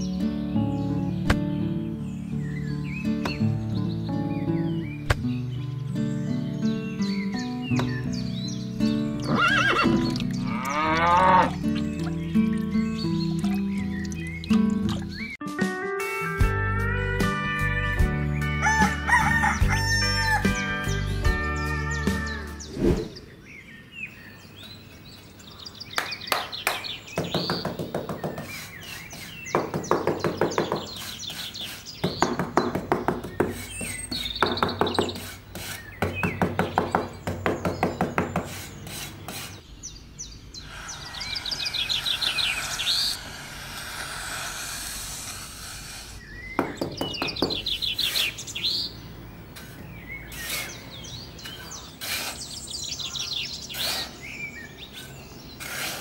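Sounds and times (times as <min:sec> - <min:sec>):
birds chirping: 0:00.0 - 0:15.5, 0:17.9 - 0:56.0
hand trowel scraping sand: 0:28.1 - 0:36.4, 0:38.1 - 0:39.7, 0:40.8 - 0:48.6, 0:49.5 - 0:54.3, 0:54.9 - 0:56.0.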